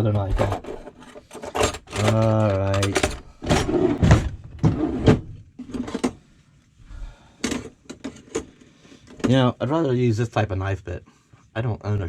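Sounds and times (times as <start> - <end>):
drawer sliding: 0.0 - 6.2
utensils clattering: 0.4 - 3.8.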